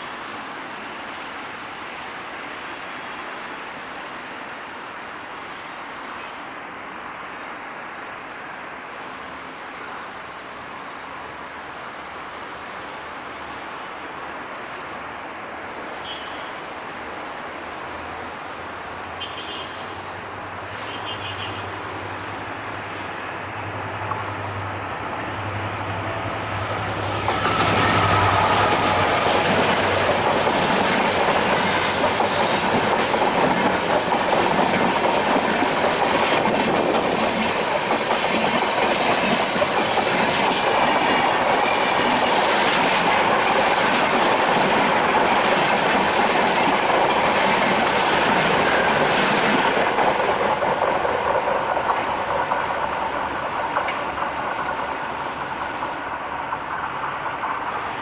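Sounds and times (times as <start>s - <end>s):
diesel locomotive drone: 19.9s - 58.0s
train wheels running on rails: 21.7s - 58.0s
rail joint clicks: 22.2s - 58.0s.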